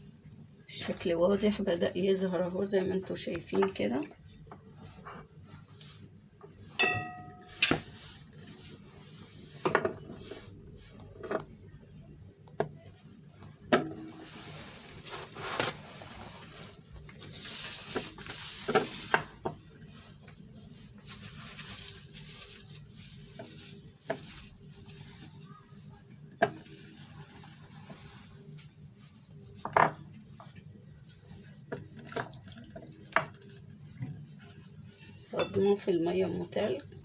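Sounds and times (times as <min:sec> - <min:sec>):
bowls and utensils clinking: 0:06.7 - 0:08.0, 0:35.1 - 0:35.9
soft rustling: 0:13.0 - 0:31.9.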